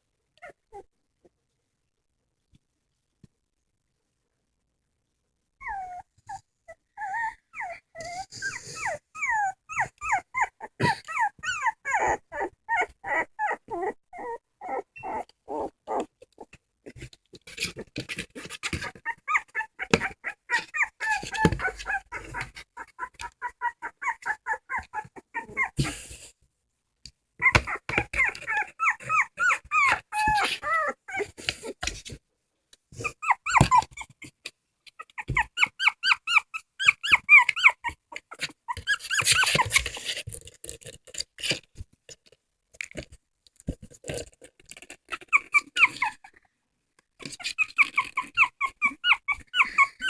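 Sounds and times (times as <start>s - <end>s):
dogs whimpering: 5.6s - 16.5s, 18.5s - 26.0s, 27.4s - 31.8s, 33.0s - 34.4s, 35.0s - 40.0s, 45.1s - 46.4s, 47.2s - 50.0s.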